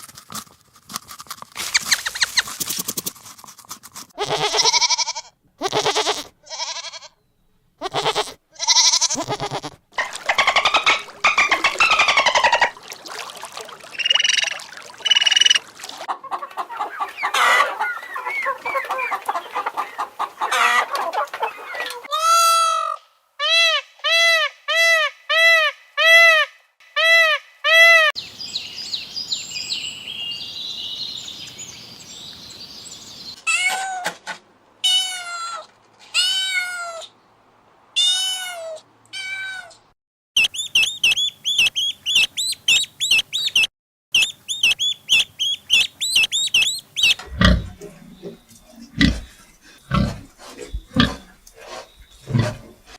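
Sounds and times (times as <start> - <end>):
mixed chattering animal calls: 10.0 - 12.8, 40.4 - 52.6
short arched bird calls: 40.4 - 47.7.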